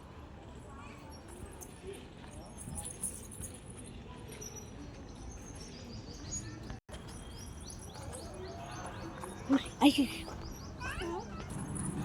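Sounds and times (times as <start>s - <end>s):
outdoor background noise: 0.0s - 12.0s
small birds chirping: 4.4s - 11.6s.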